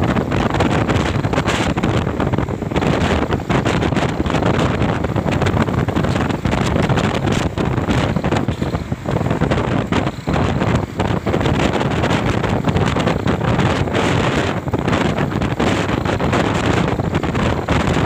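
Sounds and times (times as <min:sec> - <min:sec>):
vehicle noise: 0:00.0 - 0:18.0
wind buffeting the microphone: 0:00.0 - 0:18.0.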